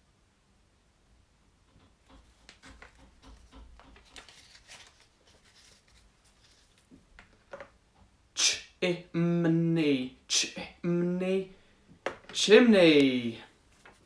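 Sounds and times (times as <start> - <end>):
faint scratching and rustling: 1.6 - 7.6.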